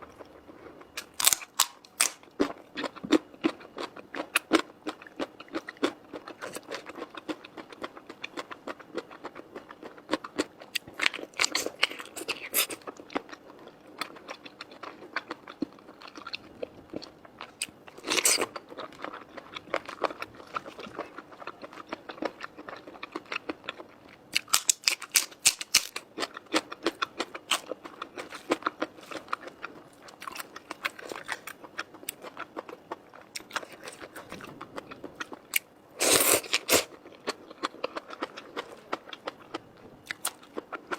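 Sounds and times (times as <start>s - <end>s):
person chewing noodles: 0.0s - 40.9s.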